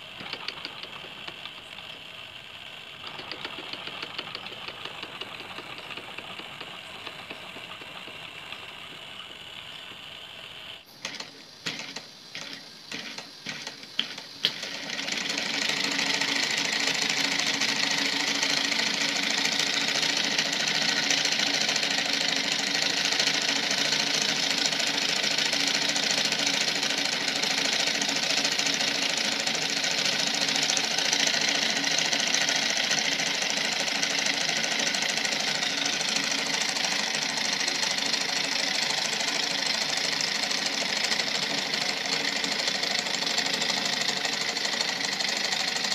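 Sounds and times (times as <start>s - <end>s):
clicks: 0.0s - 2.1s, 3.0s - 10.0s, 11.0s - 14.7s
small steam engine chattering: 0.0s - 45.9s.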